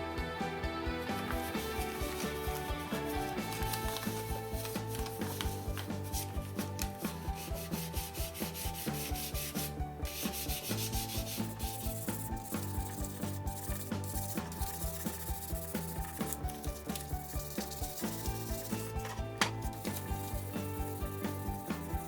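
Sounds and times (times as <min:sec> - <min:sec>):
background music with beat: 0:00.0 - 0:22.0
sanding strokes on metal: 0:07.0 - 0:22.0.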